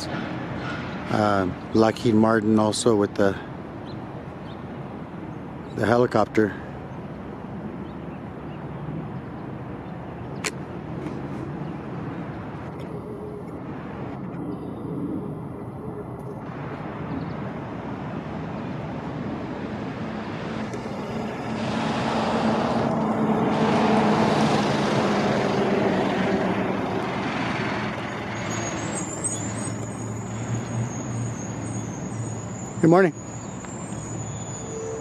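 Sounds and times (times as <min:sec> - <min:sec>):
background traffic: 0:00.0 - 0:35.0
vehicle driving past: 0:19.4 - 0:32.8.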